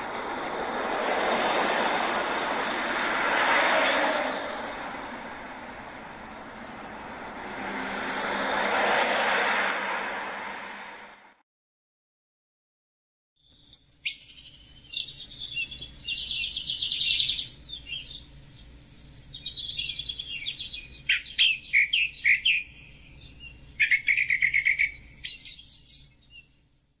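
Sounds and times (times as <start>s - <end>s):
songbirds chirping and trilling: 13.4s - 27.0s.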